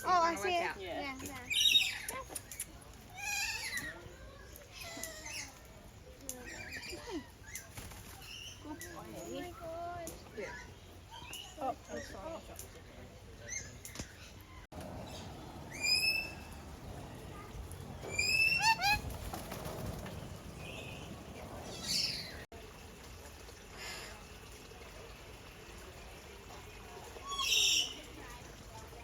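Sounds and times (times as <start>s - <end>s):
background murmur: 14.7s - 29.0s
bird whistling rising notes: 15.0s - 19.2s.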